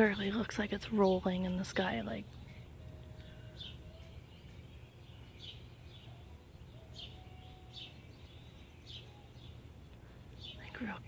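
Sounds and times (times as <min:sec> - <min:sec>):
birds chirping: 0:00.0 - 0:11.0
faint whistled bird notes: 0:02.3 - 0:09.7.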